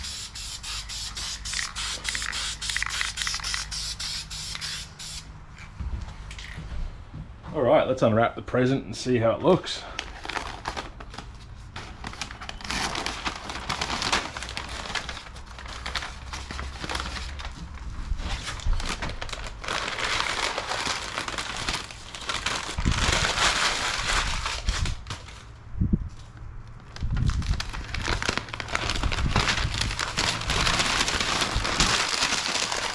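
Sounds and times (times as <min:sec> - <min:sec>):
tape and paper crinkling: 0:00.0 - 0:05.2, 0:09.9 - 0:25.5, 0:26.1 - 0:32.9.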